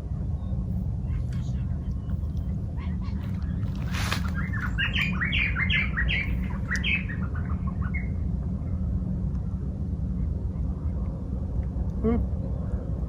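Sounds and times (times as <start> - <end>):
low rumble: 0.0 - 13.0
bird chirping: 0.3 - 8.2.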